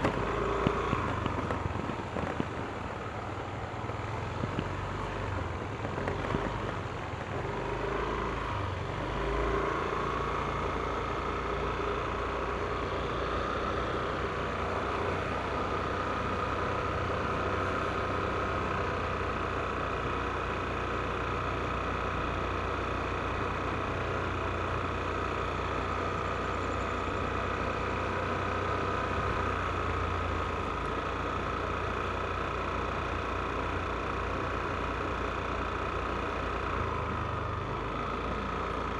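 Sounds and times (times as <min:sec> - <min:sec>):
scooter engine running: 0:00.0 - 0:38.9.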